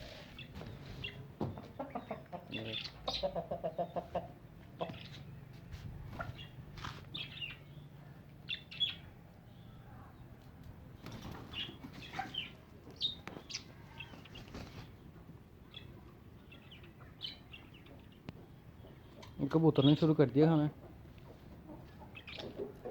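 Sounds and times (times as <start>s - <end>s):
birds chirping: 0.0s - 22.9s
rustles and wing flaps: 10.9s - 12.4s, 13.3s - 15.0s.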